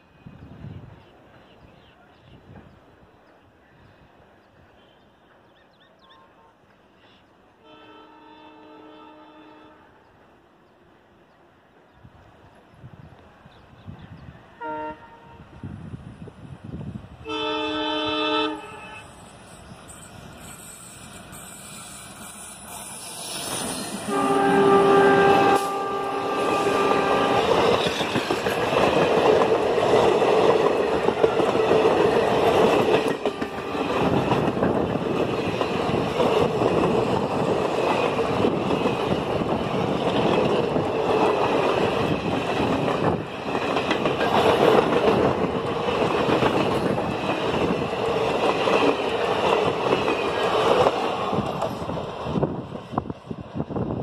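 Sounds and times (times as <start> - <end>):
locomotive horn: 7.6 - 10.0, 14.6 - 15.5, 17.2 - 19.2, 24.0 - 27.6
train wheels on rails: 18.6 - 54.0.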